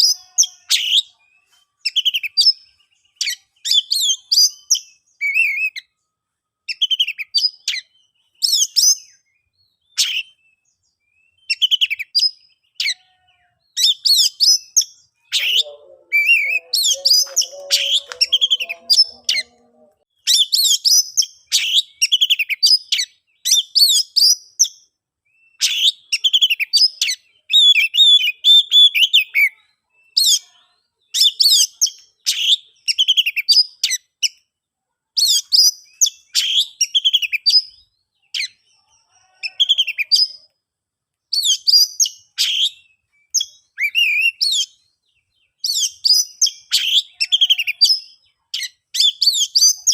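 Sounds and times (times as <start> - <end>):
bird singing whistles and chatter: 0.0 - 5.9, 6.7 - 13.0, 13.7 - 19.7, 35.2 - 38.7, 41.3 - 44.9, 45.5 - 49.9.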